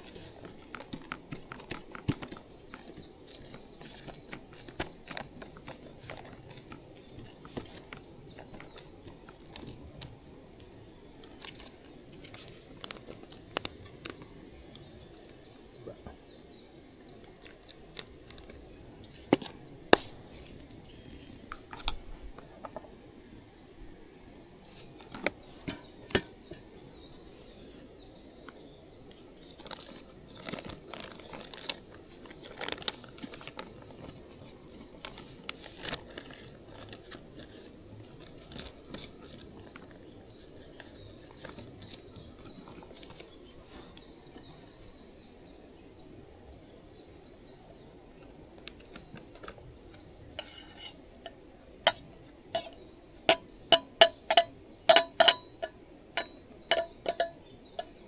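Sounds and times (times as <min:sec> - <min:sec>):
metal cookware clinking: 0:50.4 - 0:52.0, 0:52.6 - 0:58.0
metallic taps: 0:52.6 - 0:58.0.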